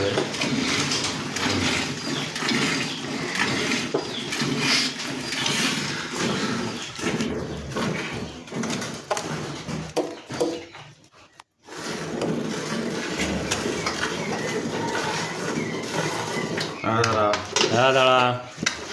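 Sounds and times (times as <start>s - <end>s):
milk squirting into a pail: 0.0s - 10.8s
farmyard animal noise: 0.0s - 18.9s.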